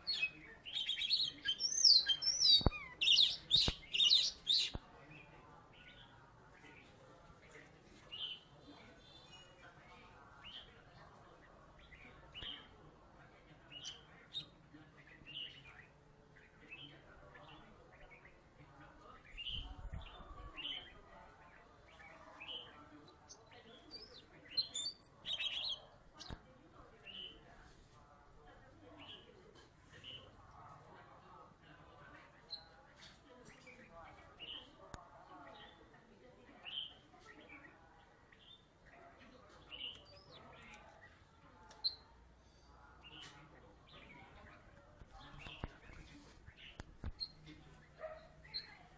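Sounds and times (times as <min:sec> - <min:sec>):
bird singing whistled notes: 0:00.0 - 0:04.8.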